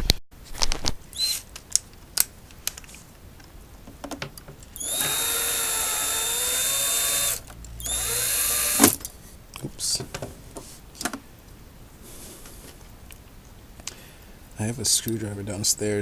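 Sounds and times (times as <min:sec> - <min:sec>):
power screwdriver running: 0:04.8 - 0:09.0.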